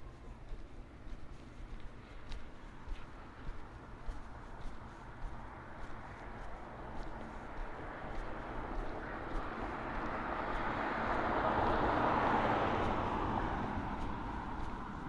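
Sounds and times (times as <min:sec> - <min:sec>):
vehicle passing by: 0:06.2 - 0:15.0.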